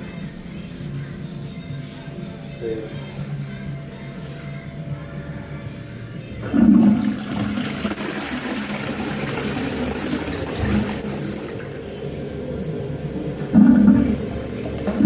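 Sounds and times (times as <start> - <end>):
toilet flushing: 6.4 - 15.0.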